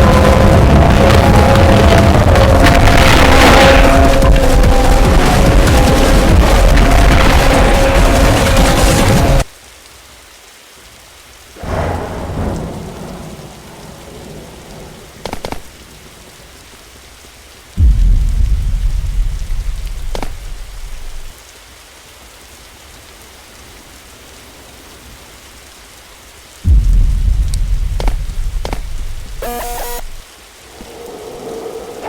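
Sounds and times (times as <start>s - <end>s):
deep rumbles: 0.0s - 9.4s, 11.6s - 16.4s, 17.8s - 21.4s, 26.7s - 30.2s
rain-like hiss: 0.0s - 32.0s.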